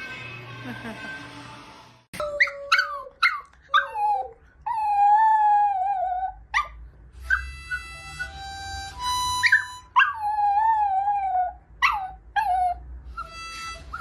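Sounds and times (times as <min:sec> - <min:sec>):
dog yipping and howling: 0:02.2 - 0:08.3, 0:09.4 - 0:12.8
harmonica chords: 0:07.3 - 0:10.0, 0:13.2 - 0:14.0.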